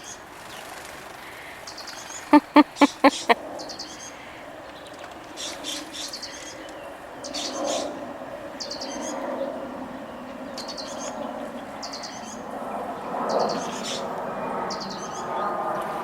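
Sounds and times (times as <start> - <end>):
faint outdoor background: 0.6 - 4.7.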